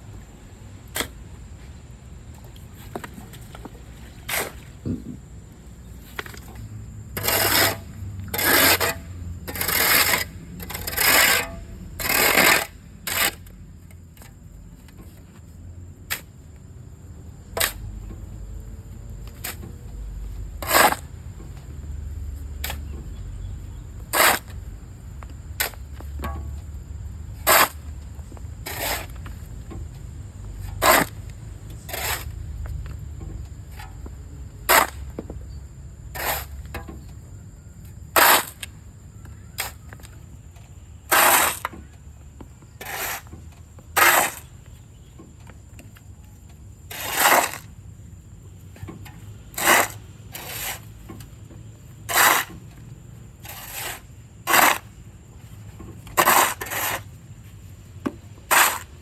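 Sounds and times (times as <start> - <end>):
shovel scraping into wet sand: 4.1 - 5.1, 7.2 - 13.4, 20.6 - 21.1, 24.1 - 24.6, 25.6 - 25.8, 27.4 - 27.9, 28.6 - 29.2, 30.6 - 31.2, 31.9 - 32.3, 34.7 - 35.0, 36.2 - 36.6, 38.2 - 38.7, 41.1 - 41.8, 42.8 - 43.3, 44.0 - 44.5, 46.9 - 47.7, 49.5 - 50.9, 52.1 - 52.6, 53.4 - 55.0, 56.0 - 57.2, 58.5 - 59.0.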